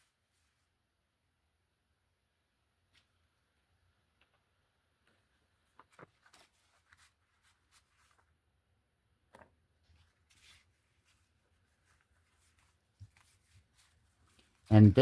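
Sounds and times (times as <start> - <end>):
paper rustling: 5.0 - 8.5, 9.3 - 15.0.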